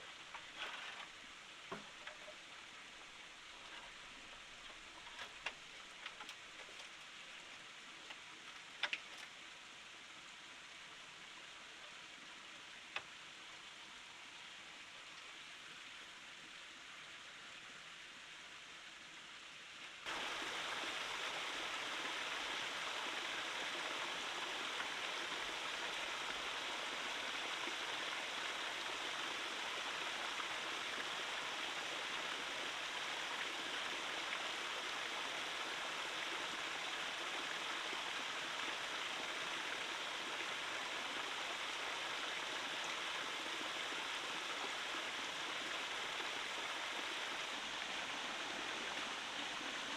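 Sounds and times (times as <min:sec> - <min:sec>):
stream water rushing: 0:20.0 - 0:49.9.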